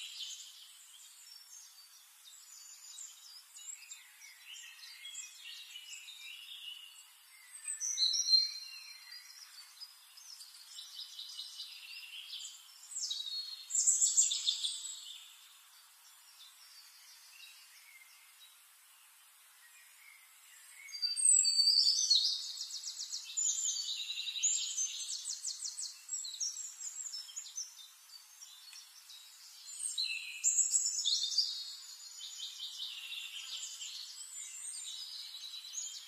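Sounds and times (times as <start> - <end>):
birds chirping and singing: 0.0 - 36.0.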